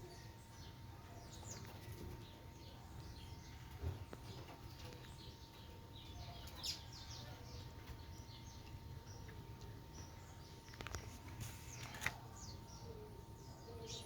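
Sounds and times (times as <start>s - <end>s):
faint hum: 0.0s - 14.0s
small birds chirping: 0.0s - 14.0s.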